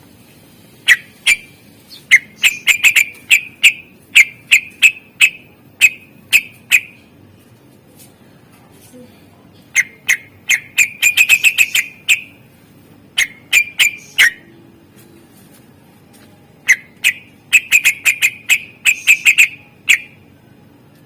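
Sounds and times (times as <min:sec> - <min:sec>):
bird singing sharp whistled notes: 0:13.6 - 0:14.5, 0:16.7 - 0:20.1.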